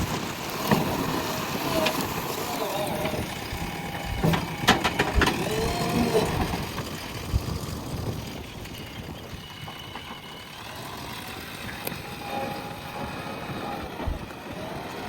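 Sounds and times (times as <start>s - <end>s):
backhoe diesel engine running: 0.0s - 15.0s
sharp knocks and clatter: 4.0s - 5.4s.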